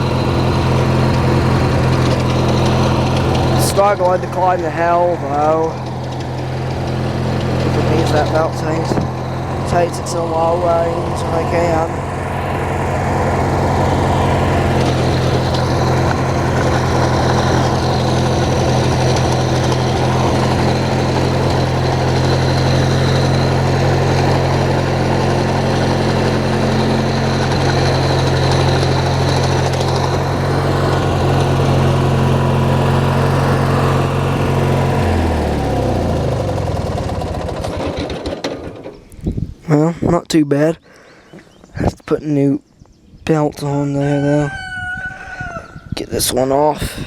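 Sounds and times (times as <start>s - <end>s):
riding tractor engine running: 0.0s - 42.2s.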